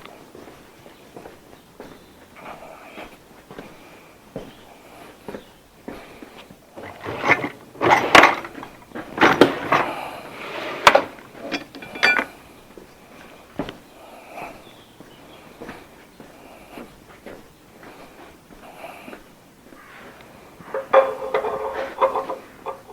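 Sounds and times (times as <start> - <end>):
tools clanking against metal engine: 6.8 - 10.2, 10.8 - 12.4, 20.7 - 22.9.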